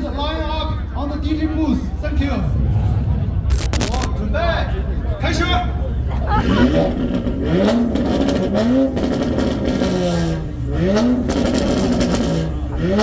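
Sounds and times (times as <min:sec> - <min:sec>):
sports car engine revving: 0:01.4 - 0:13.0
exhaust pops and cracks: 0:03.5 - 0:04.1.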